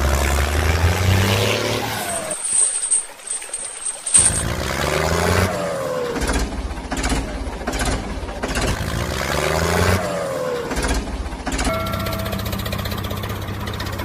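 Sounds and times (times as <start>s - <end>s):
vehicle engine revving: 4.4s - 11.2s.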